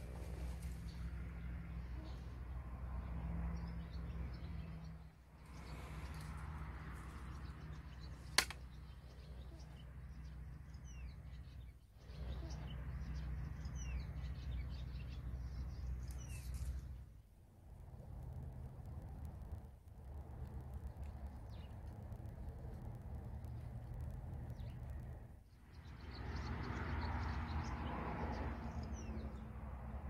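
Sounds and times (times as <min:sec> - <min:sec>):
small songbirds chirping: 0:00.0 - 0:17.2, 0:17.9 - 0:30.0
steady low hum: 0:00.0 - 0:26.4
sharp click: 0:08.4 - 0:08.6.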